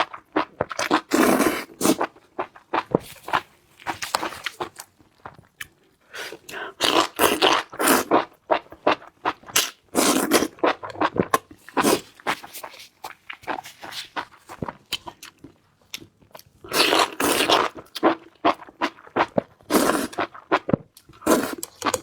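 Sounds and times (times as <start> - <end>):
person chewing: 0.0 - 22.0.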